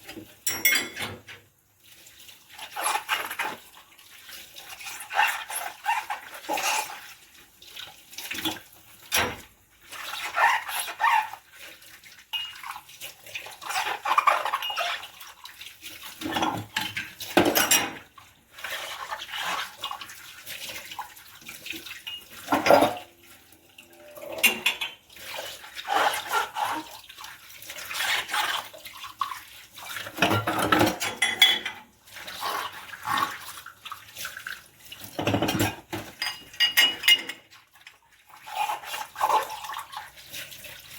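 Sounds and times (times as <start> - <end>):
dishes and cutlery clinking: 0.4 - 1.4, 12.3 - 12.7, 16.3 - 18.1, 22.0 - 23.1, 23.8 - 25.1, 30.2 - 31.9, 35.2 - 37.5
water splashing and running: 1.8 - 40.9.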